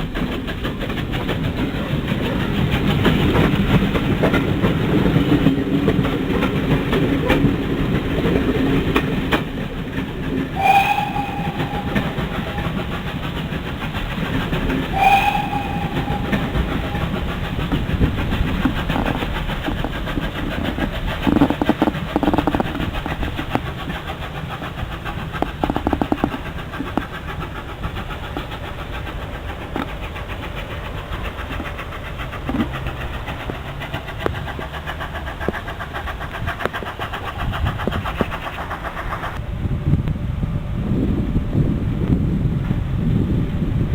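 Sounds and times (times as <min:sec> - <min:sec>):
steam train running: 0:00.0 - 0:39.6
locomotive whistle blasts: 0:10.6 - 0:13.3, 0:14.9 - 0:17.6.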